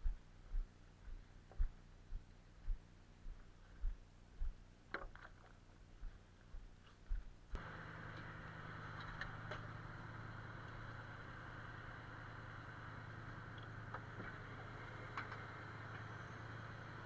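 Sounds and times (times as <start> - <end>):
engine running steadily: 7.1 - 17.0.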